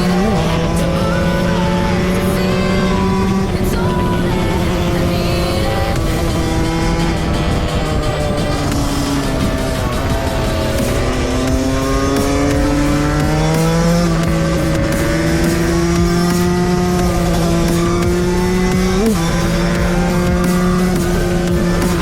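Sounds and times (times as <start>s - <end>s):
two-stroke motorcycle engine: 0.0s - 22.0s.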